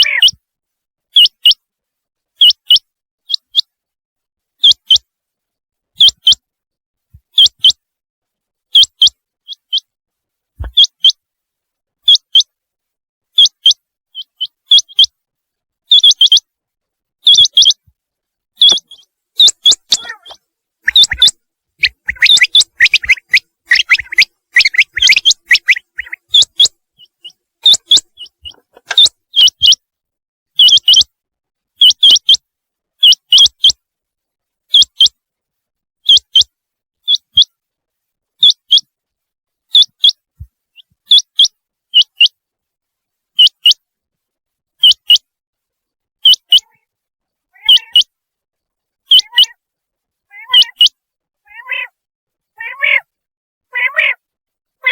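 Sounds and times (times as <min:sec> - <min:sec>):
quail calling: 0:00.0 - 0:00.4, 0:10.6 - 0:11.1, 0:15.9 - 0:16.4, 0:17.3 - 0:17.8, 0:18.6 - 0:29.8, 0:30.6 - 0:31.1, 0:46.2 - 0:46.8, 0:47.6 - 0:48.1, 0:49.1 - 0:49.6, 0:50.3 - 0:50.9, 0:51.5 - 0:51.9, 0:52.6 - 0:53.1, 0:53.7 - 0:54.2.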